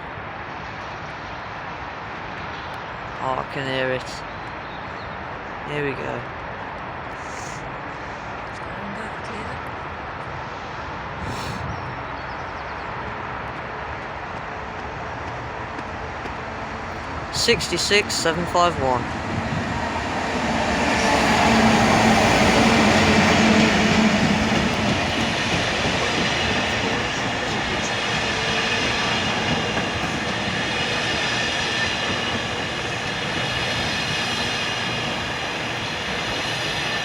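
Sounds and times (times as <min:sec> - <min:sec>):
diesel locomotive engine drone: 0:00.0 - 0:37.0
freight wagons rumbling past: 0:13.4 - 0:36.9.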